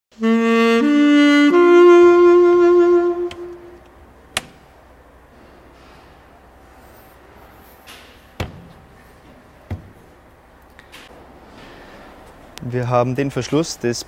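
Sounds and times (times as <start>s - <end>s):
brass-like jingle notes: 0.2s - 3.8s.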